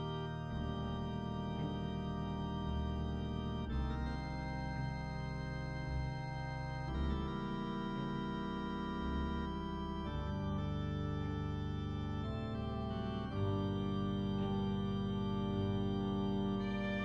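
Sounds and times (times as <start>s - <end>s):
organ-like keyboard chords: 0.0s - 17.0s.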